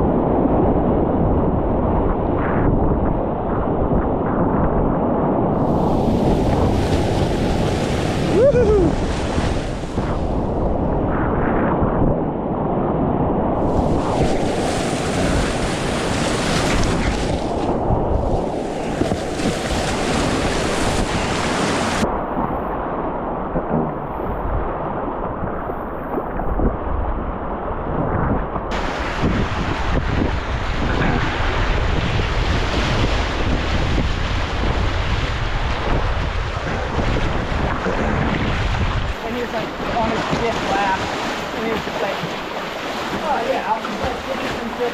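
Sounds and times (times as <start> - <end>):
wind buffeting microphone: 0.0 - 44.9
whitewater rushing: 5.6 - 10.6, 13.6 - 22.0, 28.7 - 36.0, 39.0 - 44.9.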